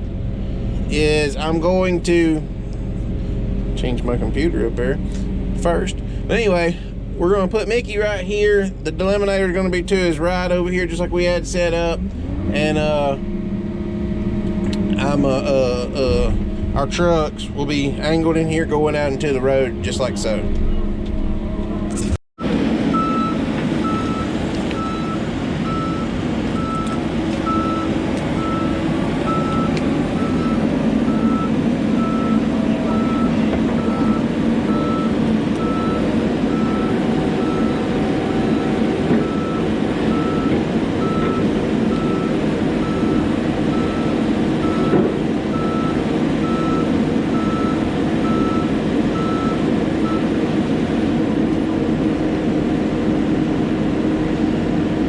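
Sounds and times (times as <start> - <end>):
diesel engine running: 0.0 - 55.0
backup alarm beeping: 22.9 - 50.3.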